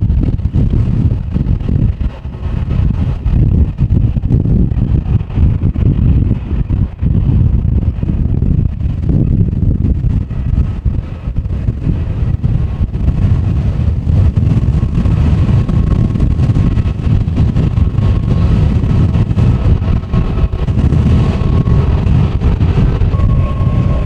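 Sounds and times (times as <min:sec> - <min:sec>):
gusty wind buffeting microphone: 0:00.0 - 0:24.0
jet engine whine: 0:10.2 - 0:24.0.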